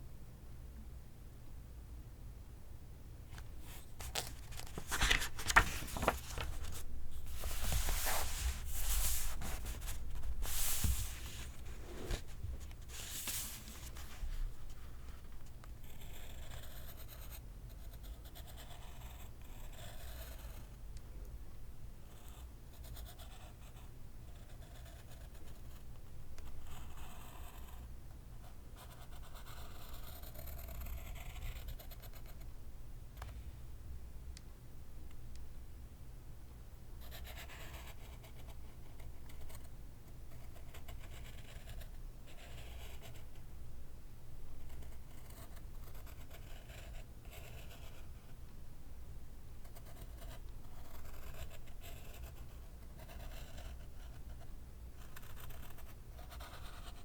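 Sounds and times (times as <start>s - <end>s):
pencil scratching on paper: 6.0s - 15.2s, 28.8s - 32.4s, 44.7s - 48.0s, 49.7s - 54.4s, 55.0s - 57.0s.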